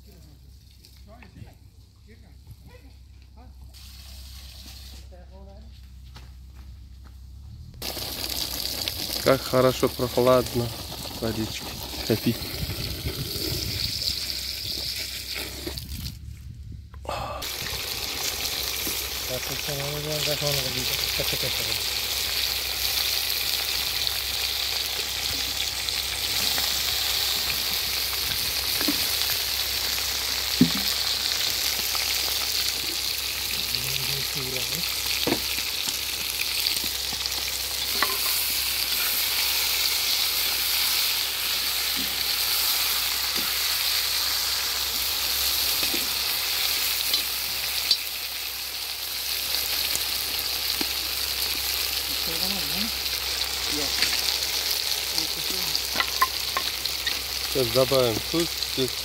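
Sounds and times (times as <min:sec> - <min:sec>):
food sizzling in hot oil: 0:03.8 - 0:05.0, 0:07.8 - 0:16.2, 0:17.4 - 0:59.0.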